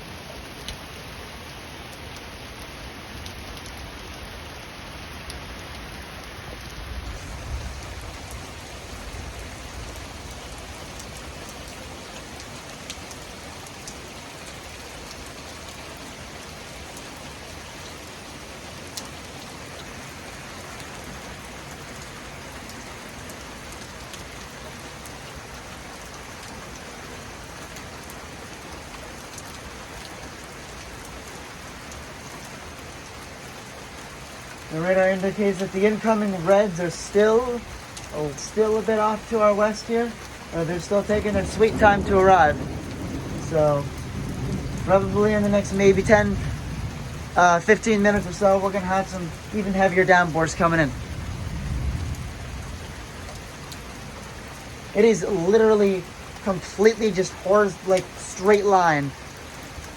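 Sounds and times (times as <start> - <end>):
torrential rain hissing: 0.0 - 59.9.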